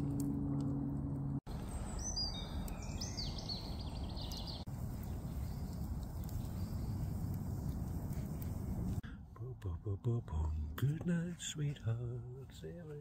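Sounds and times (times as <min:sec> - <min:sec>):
small bird whistling: 0:01.7 - 0:04.7.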